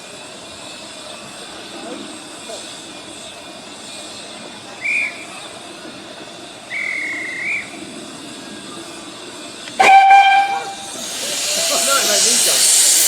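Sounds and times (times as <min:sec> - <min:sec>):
high hand whistle blown: 0:06.7 - 0:07.8, 0:09.7 - 0:13.0
steam locomotive whistle: 0:06.7 - 0:07.8, 0:09.7 - 0:13.0.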